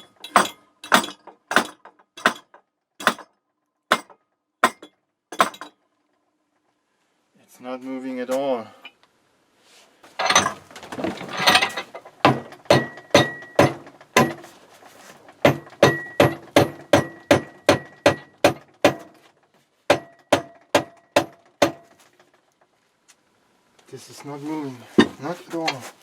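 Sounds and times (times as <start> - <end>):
hammer striking metal: 0.0 - 3.3, 3.9 - 5.7, 12.3 - 14.4, 15.4 - 19.1, 19.9 - 21.9
scraping rattle: 10.1 - 16.2.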